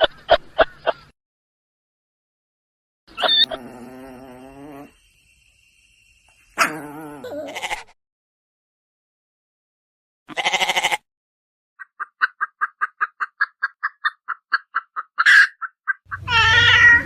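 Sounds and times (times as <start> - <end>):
wavering bleat: 7.2 - 7.9, 10.3 - 11.0.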